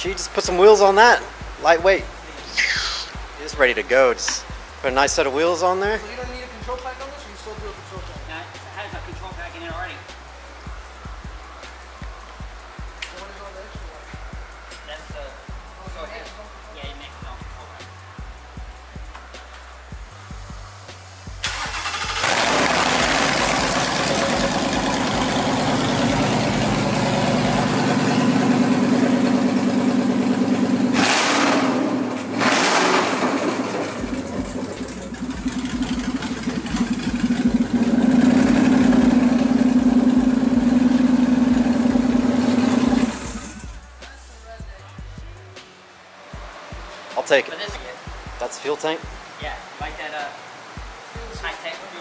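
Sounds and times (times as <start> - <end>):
engine starting and idling: 21.4 - 43.8
engine throttle blips: 21.4 - 43.8.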